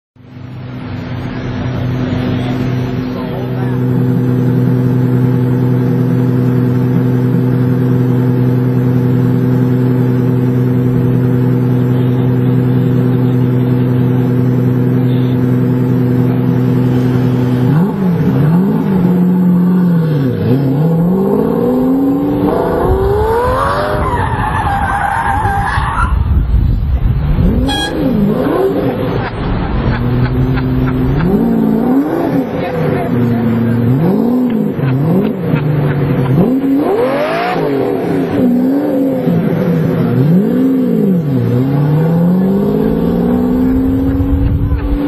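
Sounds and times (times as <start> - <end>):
sports car engine idling and revving: 0.2 - 45.0
tire squeal: 22.5 - 26.4, 27.5 - 29.2.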